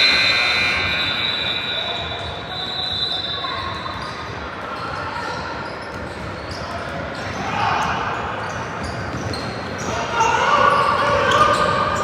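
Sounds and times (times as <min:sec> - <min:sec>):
high squeal: 0:00.0 - 0:04.2
ball bouncing on court: 0:05.8 - 0:09.8.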